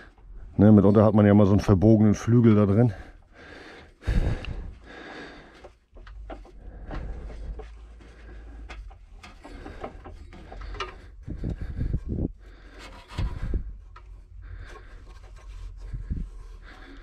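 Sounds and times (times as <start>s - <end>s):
rubbing: 4.9s - 17.0s
metal parts clicking and knocking: 8.6s - 11.6s.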